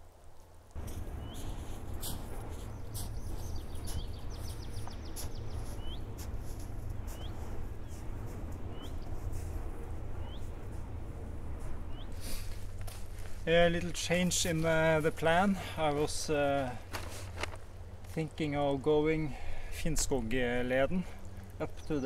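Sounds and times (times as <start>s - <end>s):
low rumble: 0.8s - 20.6s
songbird calling: 0.9s - 8.0s, 8.7s - 9.2s, 10.2s - 10.5s, 11.9s - 12.4s, 21.3s - 22.0s.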